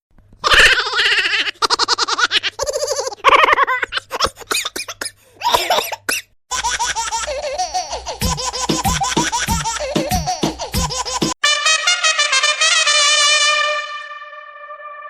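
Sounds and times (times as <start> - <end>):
high-pitched laughing: 0.4 - 4.8, 6.5 - 11.4
brass-like falling notes: 11.4 - 15.0.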